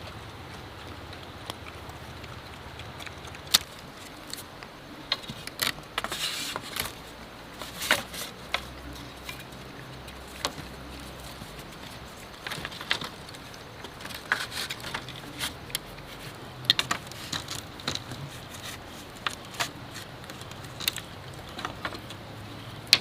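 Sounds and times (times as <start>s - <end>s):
rustling scrape: 4.0s - 22.1s
bamboo knocking and cracking: 7.6s - 22.2s.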